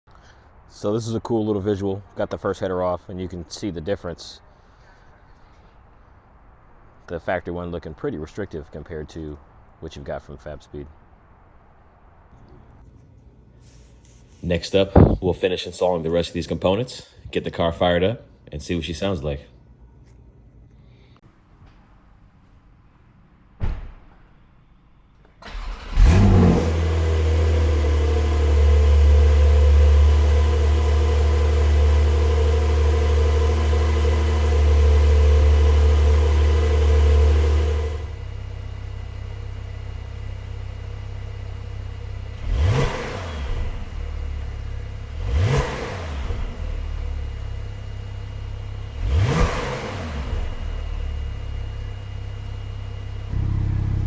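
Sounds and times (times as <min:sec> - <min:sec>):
car engine starting and idling: 0:14.8 - 0:15.2, 0:25.3 - 0:54.0
engine throttle blips: 0:14.9 - 0:15.2, 0:25.4 - 0:54.0.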